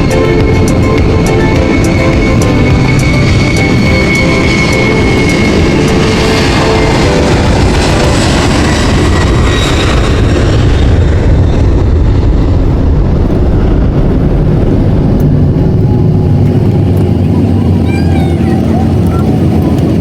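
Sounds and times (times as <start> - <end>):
airliner rumble and rushing: 0.0 - 20.0.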